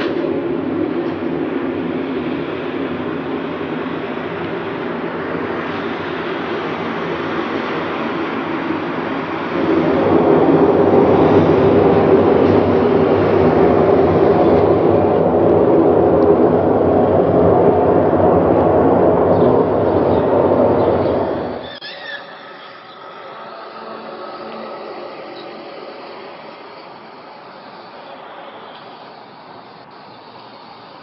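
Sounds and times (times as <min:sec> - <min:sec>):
low drone with held tones: 0:00.0 - 0:31.0.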